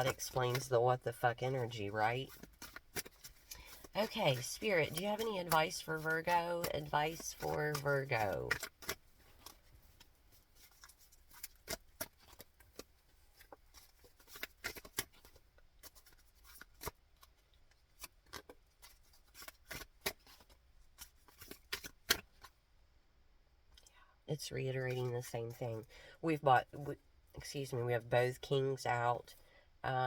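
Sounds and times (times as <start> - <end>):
cards being shuffled: 0.0 - 22.5.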